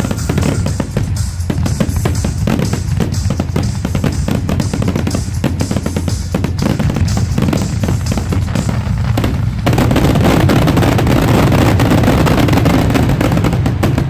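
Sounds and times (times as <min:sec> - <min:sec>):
deep rumble: 0:00.0 - 0:12.3
fireworks bangs and booms: 0:00.0 - 0:14.0.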